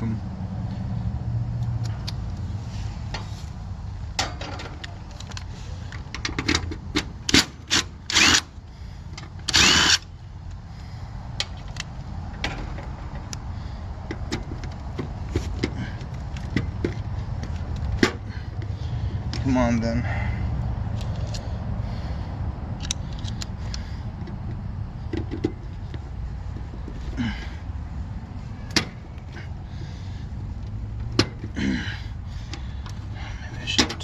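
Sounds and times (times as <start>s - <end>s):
cordless drill bursts: 8.1s - 8.5s, 9.5s - 10.0s
tools and parts clicking: 9.2s - 10.6s, 21.0s - 21.4s, 22.8s - 25.6s.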